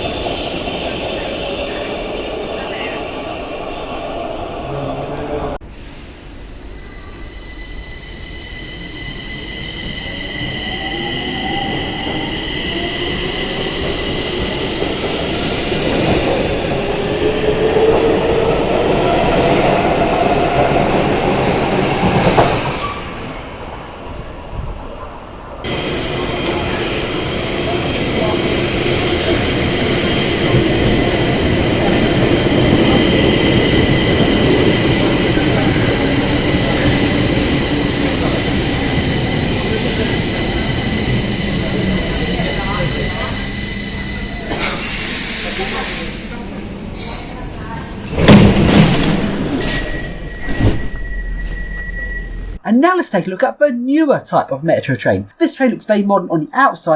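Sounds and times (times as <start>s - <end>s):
metro train running: 0.0s - 52.6s.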